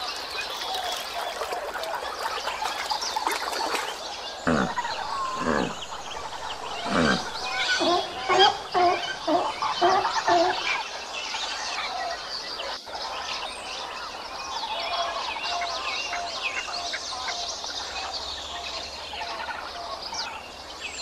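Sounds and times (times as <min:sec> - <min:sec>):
small birds chirping: 0:00.0 - 0:21.0
sea lions barking: 0:04.4 - 0:10.8.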